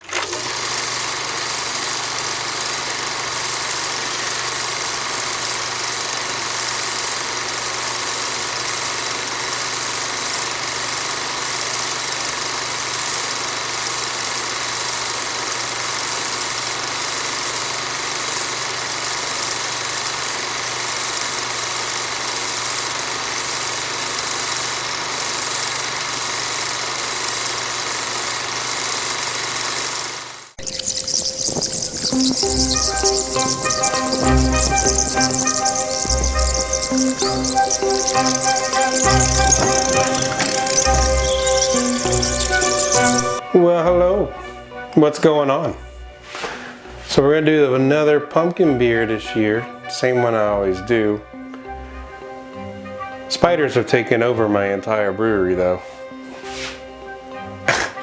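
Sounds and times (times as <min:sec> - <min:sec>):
steady machine hum: 0:00.7 - 0:45.0.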